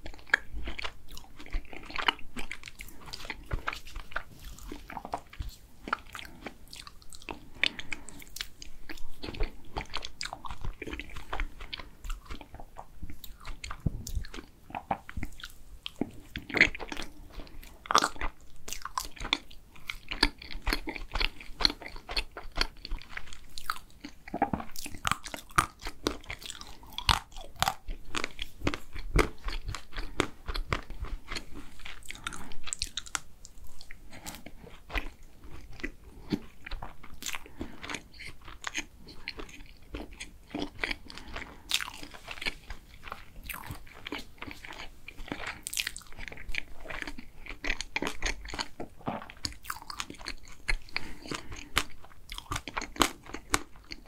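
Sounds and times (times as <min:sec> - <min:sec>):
close-miked chewing: 0:00.0 - 0:54.0.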